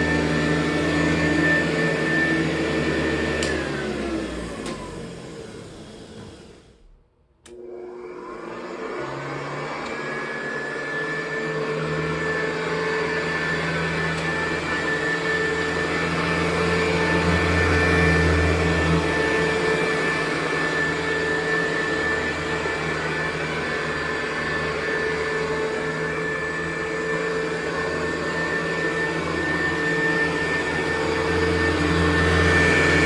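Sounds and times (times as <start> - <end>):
vacuum cleaner motor: 0.0 - 33.0
vacuum cleaner switch click: 3.4 - 3.7, 4.6 - 4.9.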